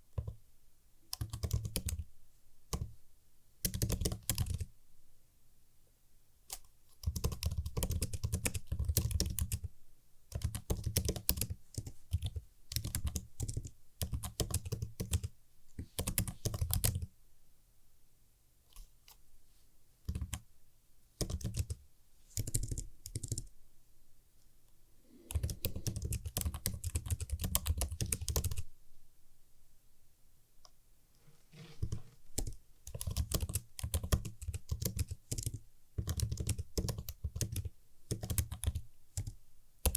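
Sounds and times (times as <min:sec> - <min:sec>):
typing on computer keyboard: 0:01.1 - 0:02.1, 0:03.6 - 0:04.7, 0:06.5 - 0:09.7, 0:10.3 - 0:15.3, 0:15.9 - 0:17.1, 0:20.1 - 0:20.4, 0:21.2 - 0:21.8, 0:22.4 - 0:23.5, 0:25.3 - 0:28.6, 0:31.8 - 0:39.9.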